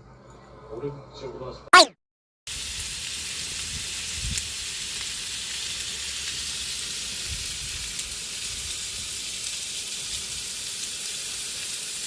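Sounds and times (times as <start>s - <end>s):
meat sizzling: 2.6s - 12.0s.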